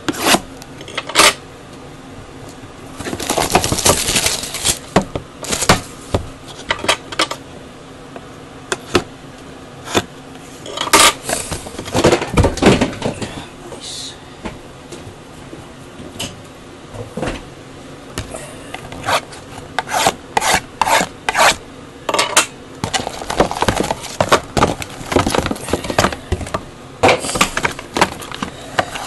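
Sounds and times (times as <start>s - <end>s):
cardboard rubbing and scraping: 18.9s - 21.6s, 22.8s - 26.6s.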